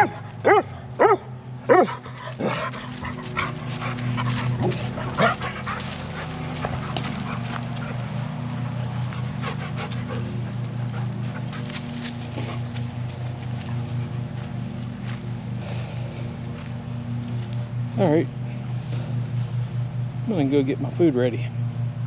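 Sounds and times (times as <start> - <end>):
dog barking: 0.0 - 6.4
steady low hum: 0.0 - 22.0.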